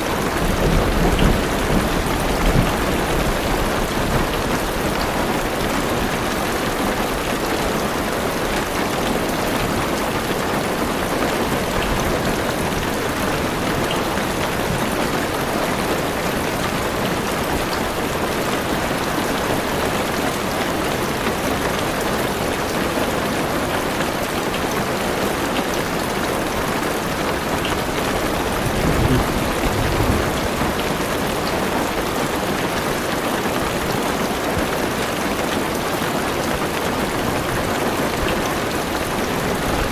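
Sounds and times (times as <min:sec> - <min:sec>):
heavy rain on car roof: 0:00.0 - 0:39.9
low rumble of thunder: 0:00.1 - 0:04.8, 0:28.2 - 0:31.5.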